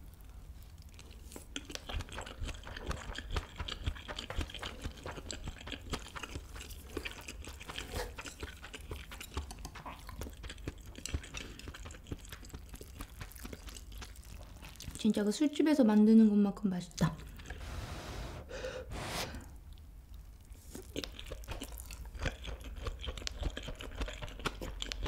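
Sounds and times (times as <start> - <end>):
close chewing mouth clicks: 0.8 - 15.1, 19.7 - 25.0.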